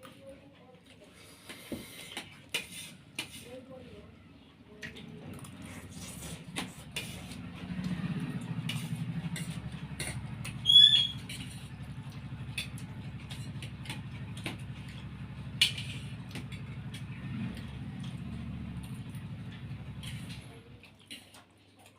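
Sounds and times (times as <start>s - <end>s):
cutlery clicking against plates: 8.6s - 17.1s
high wavering squeak: 10.6s - 11.3s.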